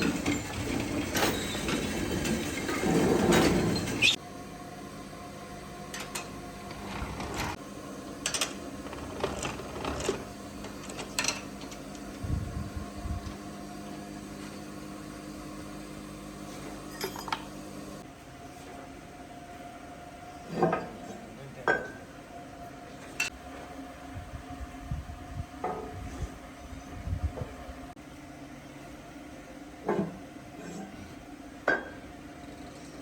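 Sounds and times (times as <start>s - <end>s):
machinery hum: 0.0s - 14.7s.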